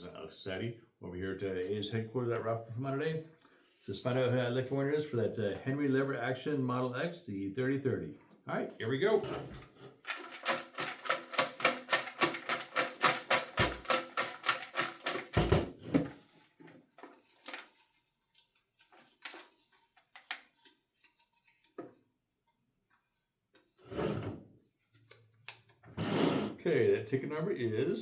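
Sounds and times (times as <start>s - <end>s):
raffle drum clicking and rattling: 9.5s - 16.2s.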